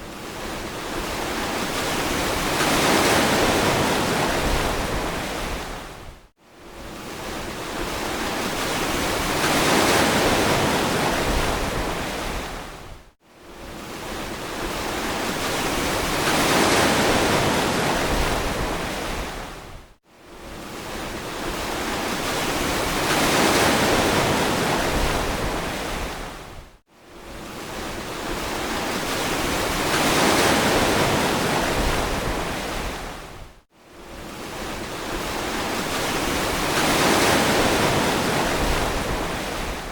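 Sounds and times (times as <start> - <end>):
ocean surf washing onto beach: 13.8 - 19.6, 34.3 - 39.9.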